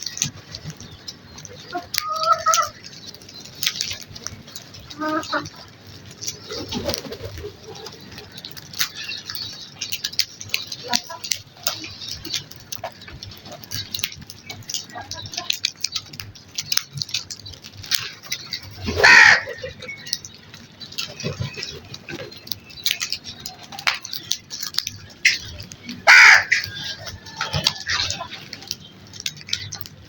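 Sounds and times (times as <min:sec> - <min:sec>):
crows cawing: 0:18.9 - 0:19.8, 0:25.2 - 0:28.4.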